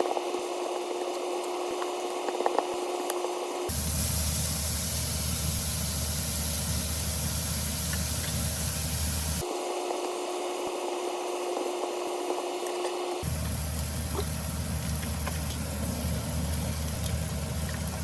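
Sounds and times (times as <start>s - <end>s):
food sizzling in a pan: 3.7s - 9.4s, 13.2s - 18.0s
low hum: 3.7s - 9.4s, 13.2s - 18.0s.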